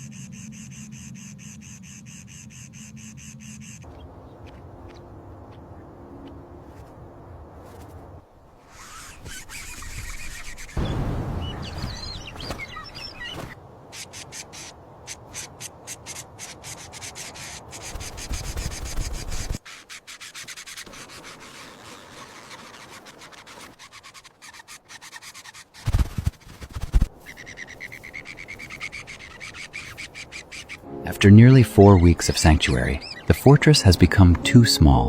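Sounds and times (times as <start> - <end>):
scratchy rubbing and scraping: 8.7 - 10.8, 13.3 - 30.8.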